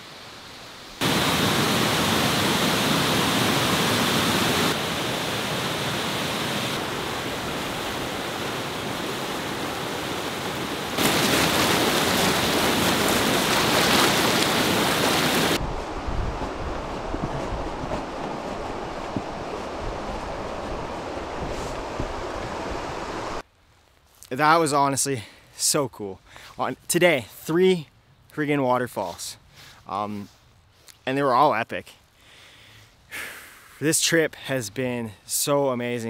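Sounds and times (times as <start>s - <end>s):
waterfall rushing: 1.0s - 15.6s.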